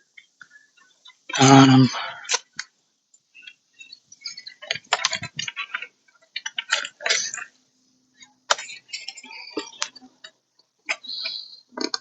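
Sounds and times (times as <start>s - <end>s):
plastic clicks and rattles: 4.2s - 7.5s, 11.7s - 12.0s.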